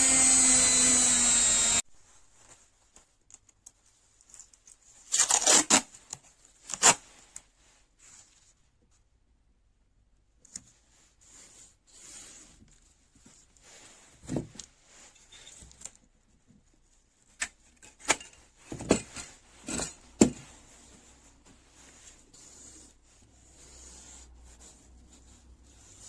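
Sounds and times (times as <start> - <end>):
soft rubbing and scraping: 10.7 - 17.1, 18.4 - 26.0.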